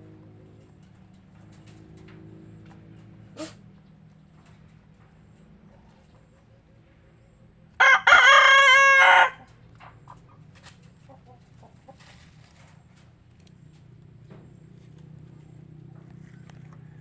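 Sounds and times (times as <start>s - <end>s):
rooster crowing: 7.8s - 9.6s, 16.2s - 17.0s.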